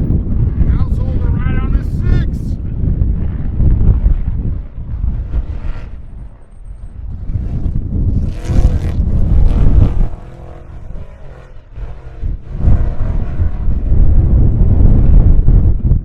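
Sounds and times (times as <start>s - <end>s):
wind buffeting microphone: 0.0s - 16.0s
race truck engines passing: 3.3s - 14.1s.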